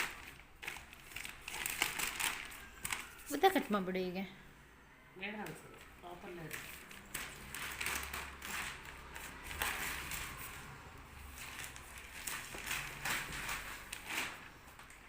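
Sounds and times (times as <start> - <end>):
packaging rustling and crinkling: 0.0 - 3.6, 5.8 - 15.0.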